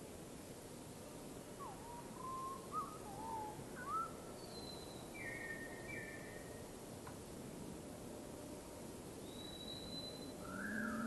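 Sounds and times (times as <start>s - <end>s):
background hiss: 0.0s - 11.0s
whistled birdsong: 1.6s - 6.6s, 9.2s - 11.0s.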